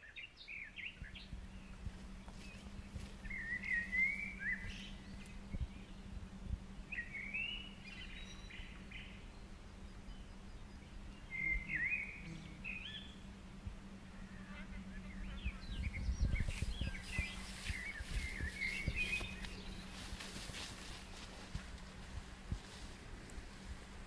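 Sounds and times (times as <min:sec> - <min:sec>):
songbird singing: 0:00.0 - 0:24.0
steady low hum: 0:00.0 - 0:24.0
low rumble: 0:12.4 - 0:24.0.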